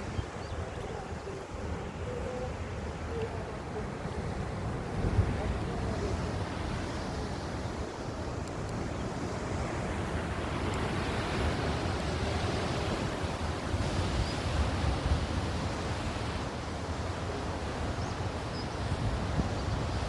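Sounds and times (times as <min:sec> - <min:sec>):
sea waves breaking on shore: 0:00.0 - 0:20.0
wind buffeting microphone: 0:00.0 - 0:20.0.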